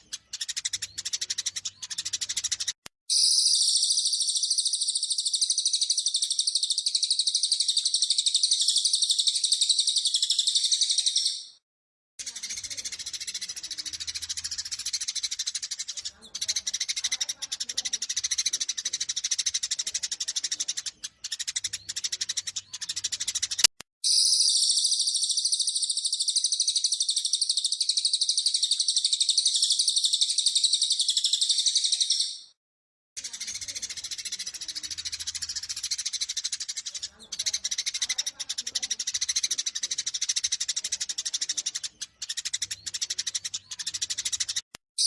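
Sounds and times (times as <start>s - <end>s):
high-pitched bird twittering: 0.0s - 11.6s, 12.2s - 32.6s, 33.2s - 44.6s
sparrows chattering: 0.0s - 11.6s, 12.2s - 32.6s, 33.2s - 44.7s
click: 23.6s - 23.8s.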